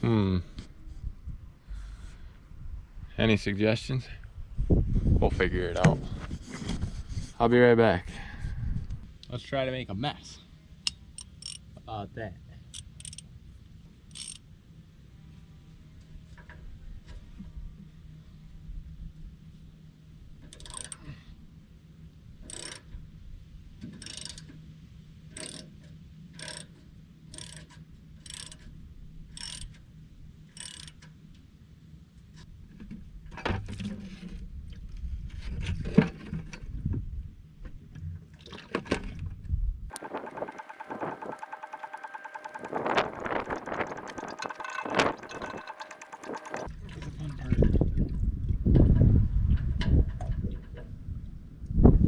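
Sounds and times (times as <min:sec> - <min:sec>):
wrench clicking: 0:10.8 - 0:11.6, 0:12.7 - 0:13.2, 0:14.1 - 0:14.4, 0:20.5 - 0:21.0, 0:22.5 - 0:22.8, 0:24.0 - 0:24.5, 0:25.4 - 0:25.7, 0:26.4 - 0:26.7, 0:27.3 - 0:28.6, 0:29.4 - 0:29.7, 0:30.6 - 0:31.0, 0:39.9 - 0:46.7
metal knocks and clanks: 0:39.9 - 0:46.7
oil pouring into a container: 0:39.9 - 0:46.7.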